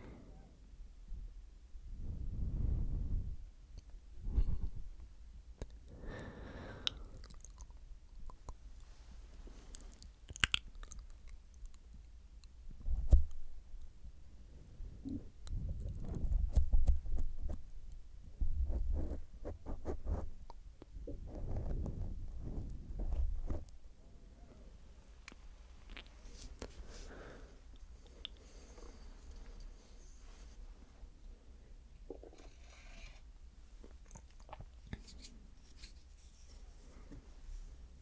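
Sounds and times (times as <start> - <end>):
wet mouth licking and smacking: 9.8 - 11.8
thumps against microphone: 15.7 - 17.7.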